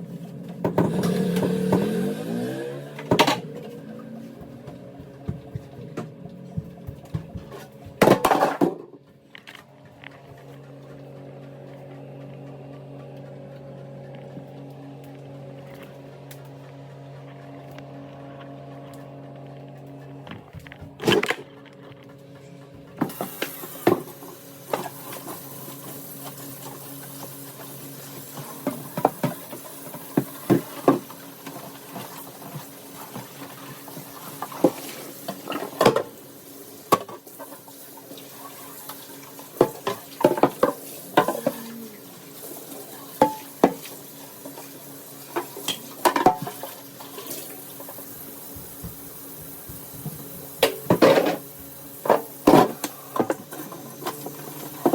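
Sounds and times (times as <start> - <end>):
tap running: 3.0 - 15.2, 43.2 - 54.9.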